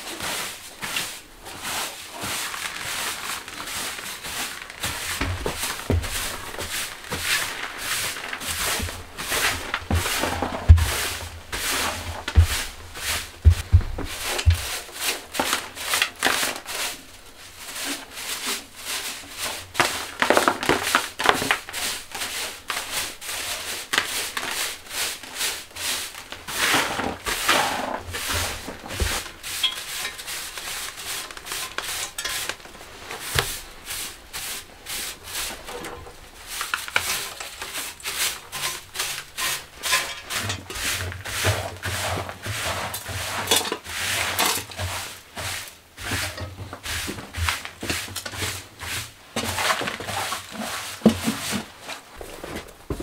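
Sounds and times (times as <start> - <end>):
rubbing and scraping on surface: 0.0 - 53.0
low knocks: 13.5 - 14.7.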